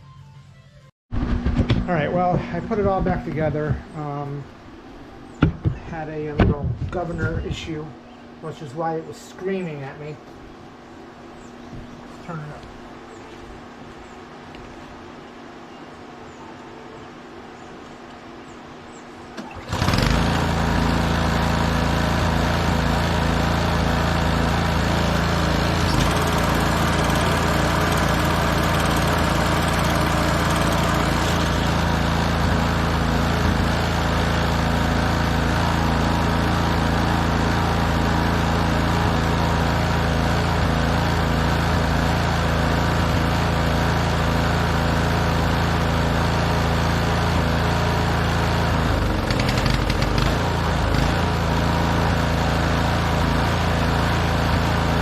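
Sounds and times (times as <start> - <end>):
snowblower engine running: 19.4 - 55.0.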